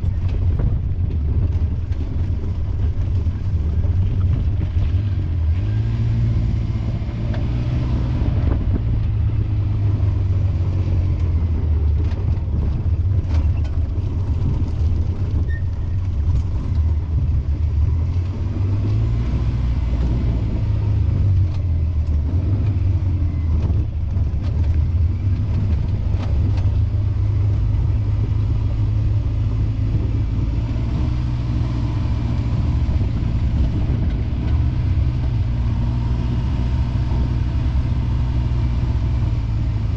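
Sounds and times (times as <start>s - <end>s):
vehicle engine and road rumble: 0.0s - 39.9s.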